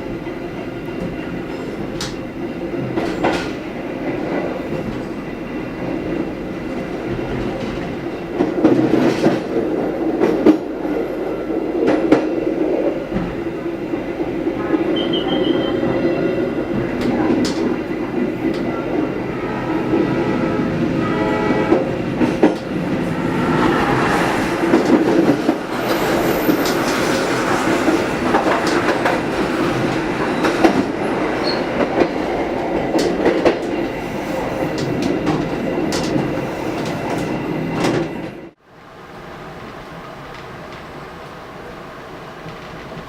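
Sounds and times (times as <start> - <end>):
train wheels clattering on rails: 0.0 - 20.8, 21.6 - 38.6
horn-like tone: 14.6 - 16.6, 19.3 - 21.9.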